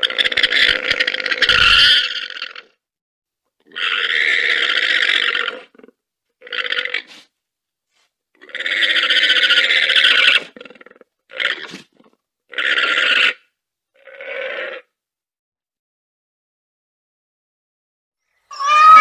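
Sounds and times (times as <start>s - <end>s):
llama calling: 0.6s - 2.2s, 18.5s - 19.0s.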